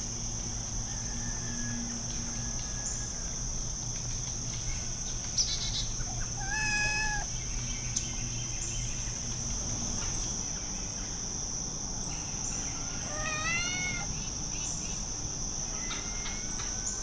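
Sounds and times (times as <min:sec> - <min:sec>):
insects chirring: 0:00.0 - 0:17.0
chicken call: 0:06.2 - 0:07.3.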